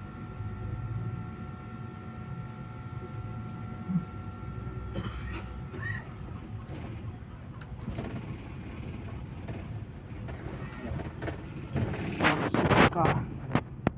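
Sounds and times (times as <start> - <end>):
bus engine and road rumble: 4.9 - 13.9.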